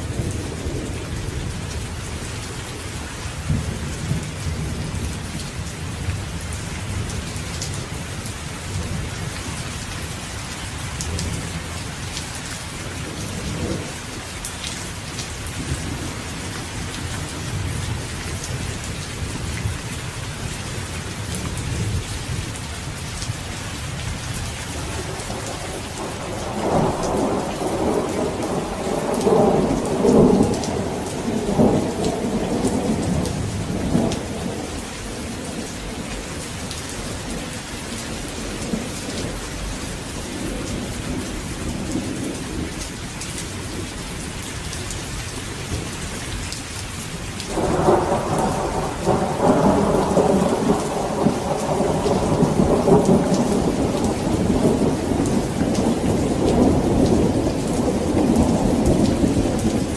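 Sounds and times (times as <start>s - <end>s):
steady rain: 0.0s - 59.9s
thunder rolling: 25.0s - 34.8s, 47.5s - 59.9s.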